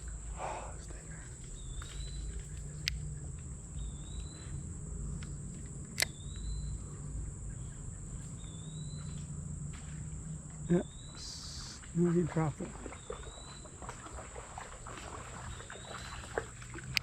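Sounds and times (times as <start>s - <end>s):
insect drone: 0.0s - 17.0s
sharp clicks: 1.4s - 3.1s, 5.2s - 6.6s
bird whistled call: 6.0s - 6.8s, 8.4s - 9.2s.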